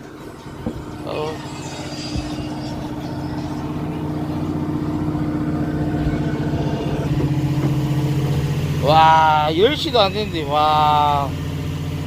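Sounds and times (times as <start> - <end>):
fishing reel motor humming: 0.0 - 8.9.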